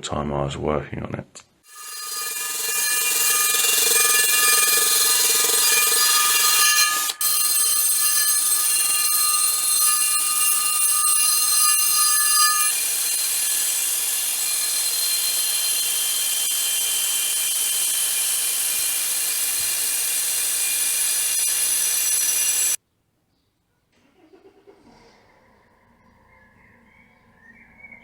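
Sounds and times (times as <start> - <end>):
brake drum ringing: 1.7 - 22.8
wire brush scraping brake drum: 1.7 - 22.8.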